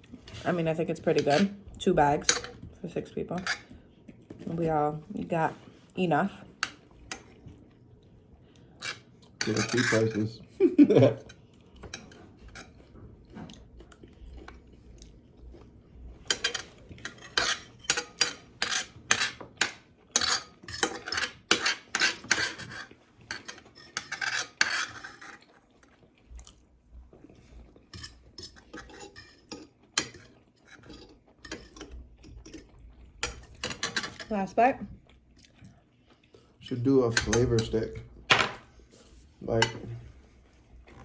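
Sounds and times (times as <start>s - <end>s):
cutlery clinking and scraping on plates: 0.2s - 1.6s, 2.2s - 2.6s, 3.4s - 3.8s, 8.8s - 10.3s, 11.1s - 12.9s, 16.2s - 25.5s, 27.9s - 34.4s, 36.7s - 38.7s, 39.5s - 40.1s.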